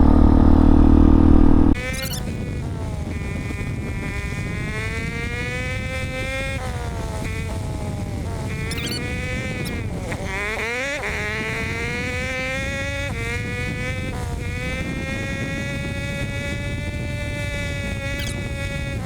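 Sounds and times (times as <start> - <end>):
motorcycle engine buzzing: 0.0 - 19.0
wind and road noise: 0.0 - 19.0.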